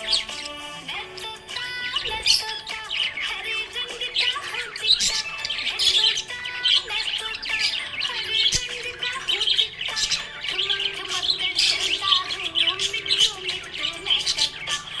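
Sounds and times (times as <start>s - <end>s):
budgerigar chirping and warbling: 0.0s - 15.0s.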